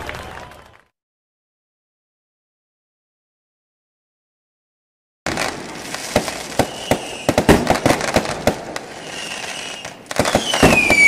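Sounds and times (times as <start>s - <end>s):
fireworks bangs and crackles: 0.0s - 0.9s, 5.3s - 11.0s
faint fireworks whistles: 5.3s - 11.0s.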